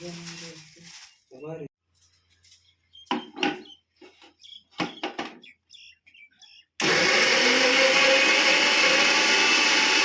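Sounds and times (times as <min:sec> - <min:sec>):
mixer grinder motor whirring: 0:06.8 - 0:10.0.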